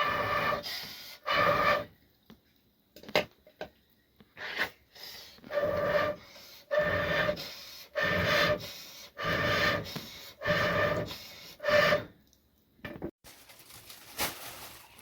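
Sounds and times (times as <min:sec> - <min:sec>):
hand saw cutting wood: 0:06.8 - 0:08.6, 0:09.2 - 0:12.1.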